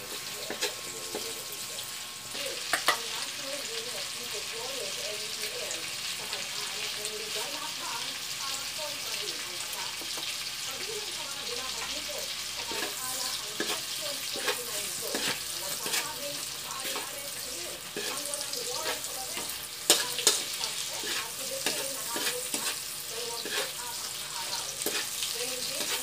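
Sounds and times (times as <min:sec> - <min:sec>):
shrimp sizzling in hot oil: 0:00.0 - 0:26.0
metal spatula scraping a wok: 0:12.6 - 0:26.0.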